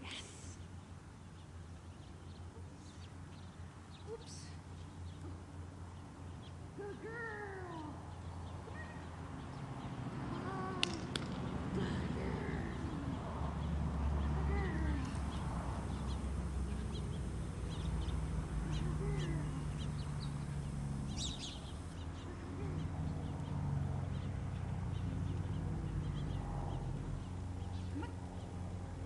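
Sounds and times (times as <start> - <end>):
small birds chirping: 0.0 - 29.0
steady low hum: 11.7 - 23.5.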